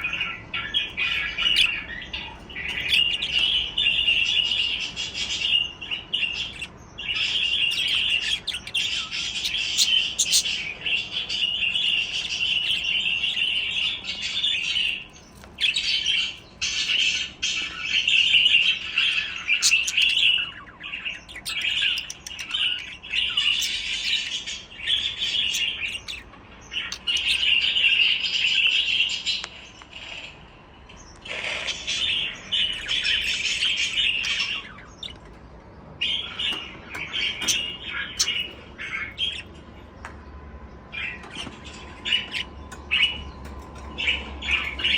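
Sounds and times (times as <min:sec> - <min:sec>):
budgerigars chirping and chattering: 0:00.0 - 0:44.9.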